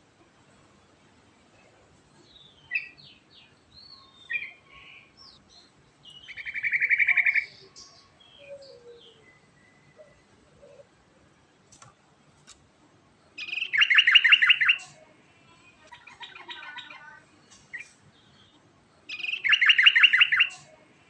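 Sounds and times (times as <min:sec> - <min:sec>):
bird chirps and trill: 0:02.2 - 0:10.8, 0:13.4 - 0:15.0, 0:15.9 - 0:20.8.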